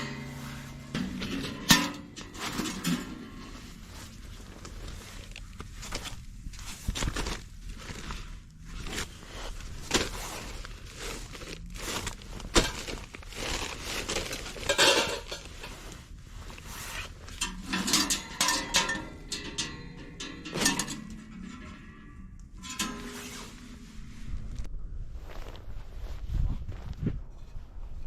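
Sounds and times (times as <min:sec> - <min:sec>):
low steady hum: 0:00.0 - 0:28.0
cookware and utensils clinking: 0:14.6 - 0:15.7, 0:17.4 - 0:22.0.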